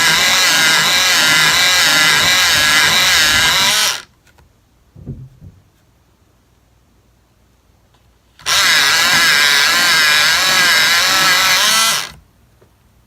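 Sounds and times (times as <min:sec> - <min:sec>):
pencil sharpener grinding: 0:00.0 - 0:04.1, 0:08.4 - 0:12.2
soft knocks: 0:05.0 - 0:05.7.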